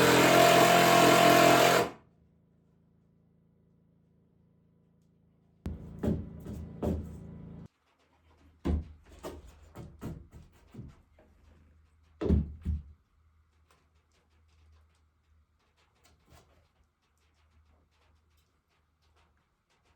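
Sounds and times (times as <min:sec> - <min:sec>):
wood knocking on wood: 0:05.7 - 0:07.2.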